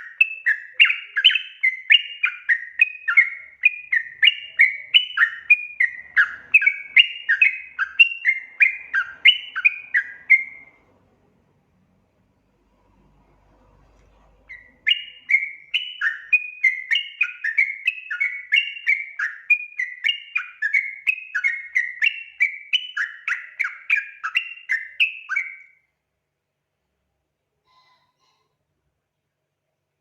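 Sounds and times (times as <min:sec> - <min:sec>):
bird singing bubbly notes: 0:00.0 - 0:10.8, 0:14.5 - 0:25.7.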